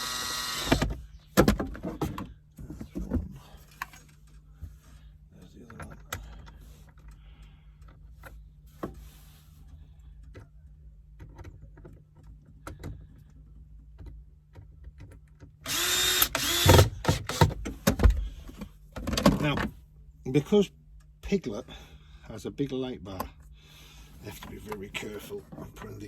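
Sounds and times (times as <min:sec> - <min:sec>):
power drill driving screws: 0:00.0 - 0:00.9, 0:15.6 - 0:17.6.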